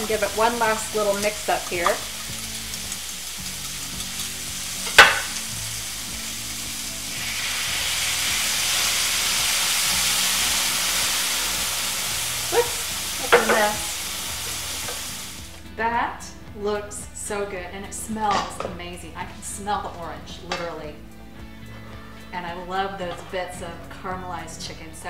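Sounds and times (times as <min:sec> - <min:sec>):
food sizzling in a skillet: 0:00.0 - 0:15.8.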